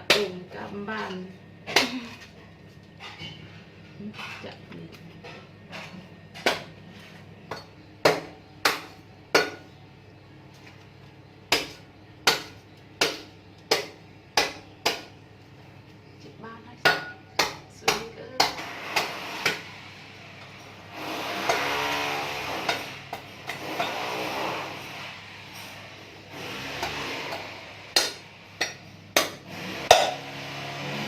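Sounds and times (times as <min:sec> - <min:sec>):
blade chopping coconut: 0:06.4 - 0:06.7, 0:07.5 - 0:09.7, 0:11.5 - 0:15.2, 0:16.9 - 0:19.7, 0:21.4 - 0:24.4, 0:26.5 - 0:31.0.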